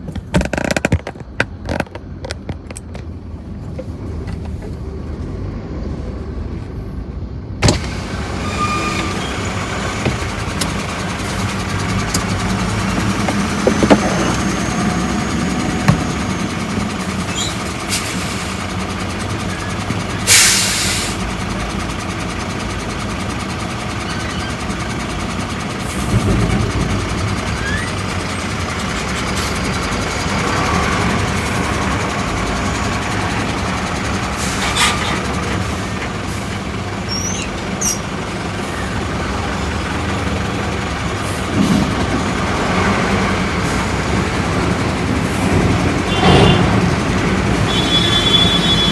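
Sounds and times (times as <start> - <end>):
traffic and engine noise: 0.0 - 48.9.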